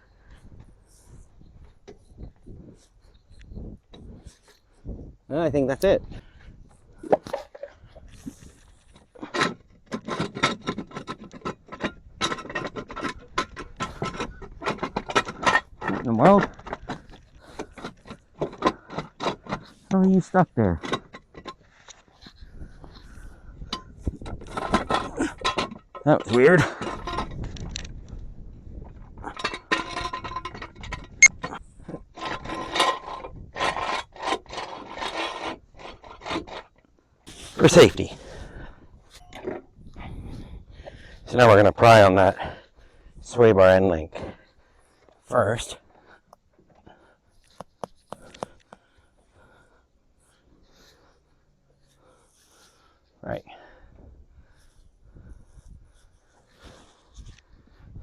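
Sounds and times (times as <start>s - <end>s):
metal scraping and rubbing: 29.3s - 39.6s.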